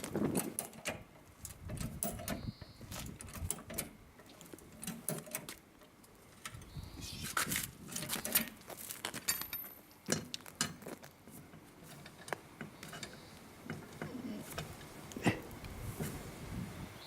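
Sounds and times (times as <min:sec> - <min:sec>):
tools clicking and knocking: 0:00.4 - 0:06.6.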